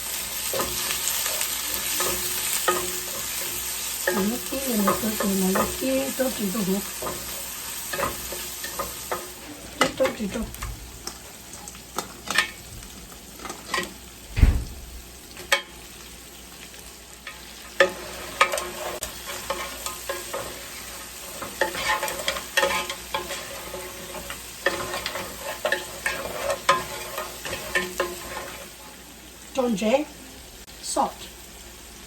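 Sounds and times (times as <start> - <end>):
sizzling in hot oil: 0.0 - 32.0
utensil scraping against pan: 0.4 - 10.3, 17.2 - 29.0
heavy thump: 14.3 - 15.0.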